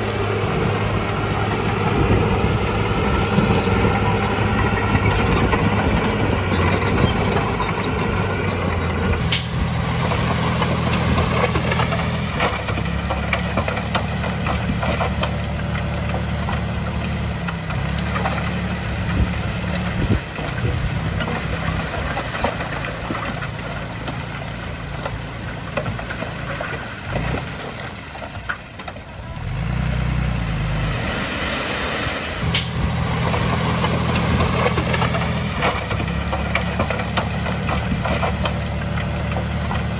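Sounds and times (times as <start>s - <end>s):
crackling: 0.0s - 18.6s
bulldozer diesel engine running: 0.0s - 39.9s.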